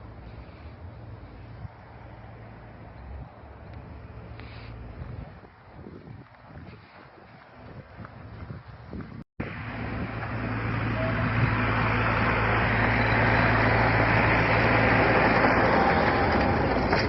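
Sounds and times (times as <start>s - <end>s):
car engine running: 9.4s - 17.0s.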